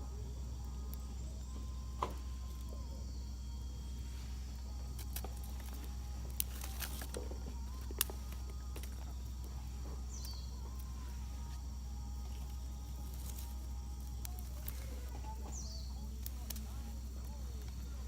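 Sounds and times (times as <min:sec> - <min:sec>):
campfire crackling and popping: 0:04.6 - 0:18.0
faint bird call: 0:14.2 - 0:18.0.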